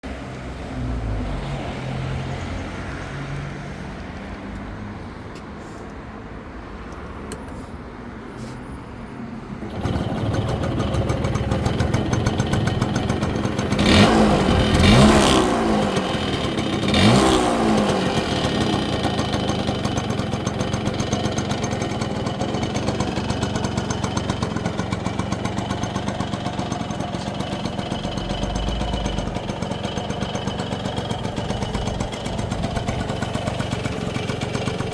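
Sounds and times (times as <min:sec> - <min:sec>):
motorcycle engine revving and idling: 0:09.5 - 0:34.9.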